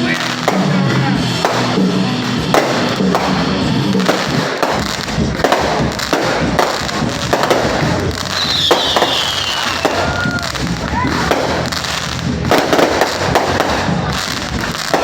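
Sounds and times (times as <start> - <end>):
fireworks bangs: 0.0 - 15.0
high falling whistle: 8.4 - 10.4.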